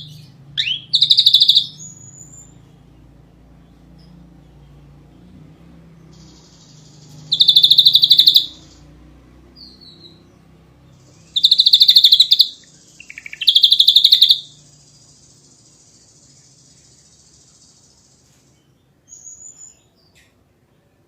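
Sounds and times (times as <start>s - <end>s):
thin bird whistle: 0.0s - 2.5s, 6.2s - 8.8s, 11.2s - 14.6s
bird rattling trills: 0.6s - 1.8s, 6.2s - 8.8s, 11.1s - 18.1s.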